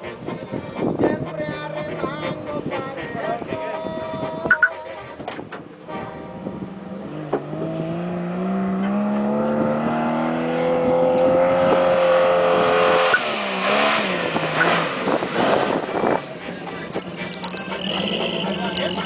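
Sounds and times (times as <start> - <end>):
off-road vehicle engine revving: 0.0 - 3.8, 5.6 - 19.0.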